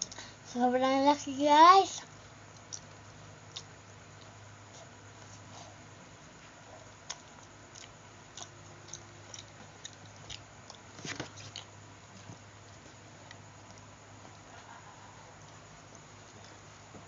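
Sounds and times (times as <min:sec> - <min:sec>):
low hum: 0:02.0 - 0:17.0
person chewing: 0:02.5 - 0:04.3, 0:06.8 - 0:16.7.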